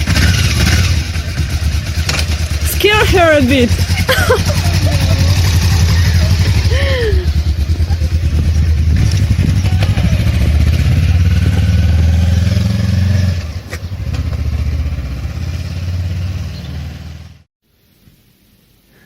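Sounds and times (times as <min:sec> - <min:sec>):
motorcycle engine running: 0:00.0 - 0:17.5.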